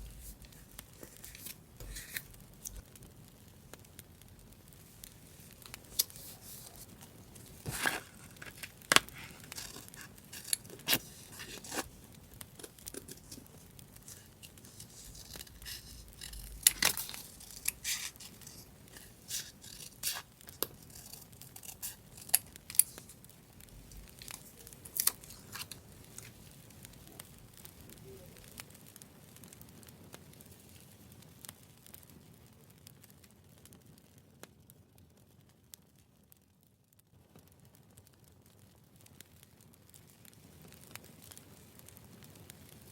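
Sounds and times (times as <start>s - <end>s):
paper rustling: 0.0s - 2.8s, 5.4s - 23.2s, 23.8s - 26.4s
paper tearing: 0.0s - 2.8s, 7.6s - 12.0s, 12.6s - 23.2s
scissors snipping paper: 0.2s - 2.8s, 7.6s - 11.9s, 12.6s - 23.2s.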